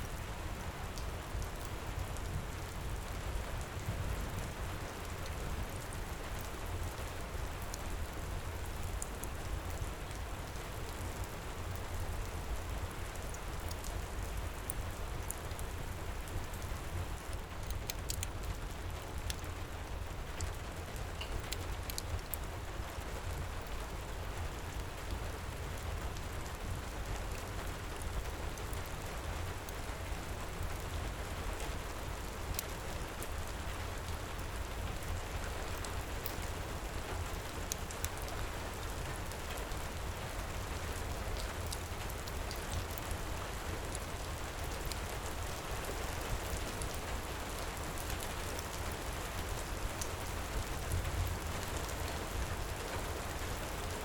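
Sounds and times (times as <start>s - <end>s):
heavy rain pouring: 0.2s - 54.0s
fireplace crackling: 17.4s - 18.3s.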